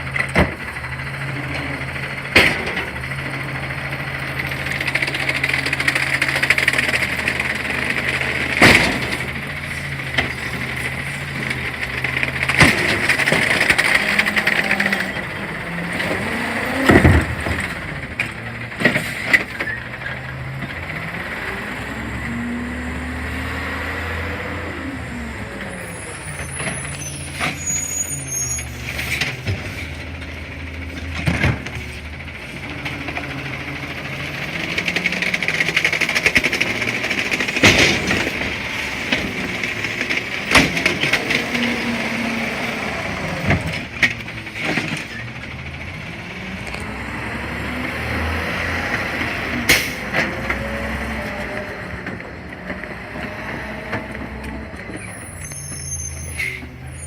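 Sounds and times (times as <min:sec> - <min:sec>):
garbage truck engine revving: 0:00.0 - 0:57.0
metal clanks and bin bangs: 0:01.5 - 0:03.2, 0:07.2 - 0:19.8, 0:28.9 - 0:33.2, 0:34.7 - 0:42.2.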